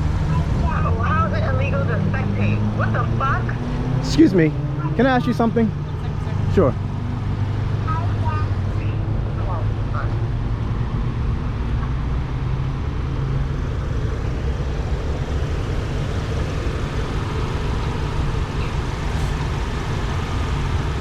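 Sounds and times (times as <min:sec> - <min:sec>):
background traffic noise: 0:00.0 - 0:21.0
vehicle engine rumbling: 0:00.0 - 0:21.0.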